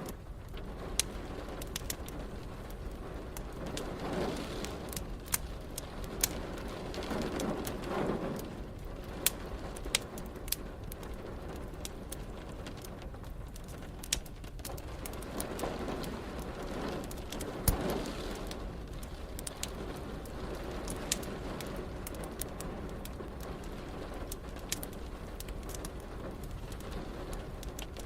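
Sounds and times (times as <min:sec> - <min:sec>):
rain hissing: 0:00.0 - 0:28.0
wood fire crackling: 0:00.0 - 0:28.0.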